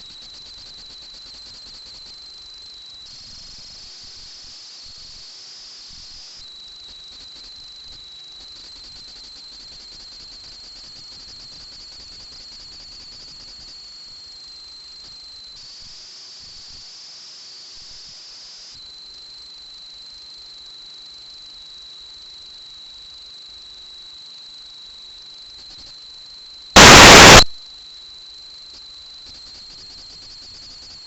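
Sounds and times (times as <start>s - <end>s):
electronic hiss with high whine: 2.1s - 9.0s, 26.7s - 27.6s
loud burst of static: 26.8s - 27.5s.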